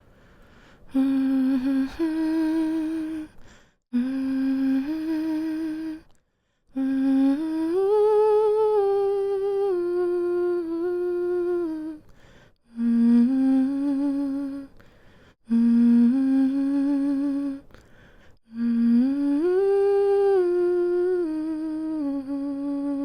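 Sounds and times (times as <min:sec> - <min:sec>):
woman humming a lullaby: 0:18.6 - 0:23.0.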